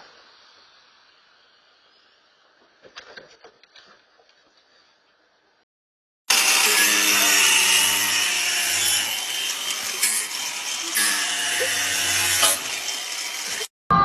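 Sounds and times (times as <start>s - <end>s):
power tool grinding: 6.3s - 13.8s.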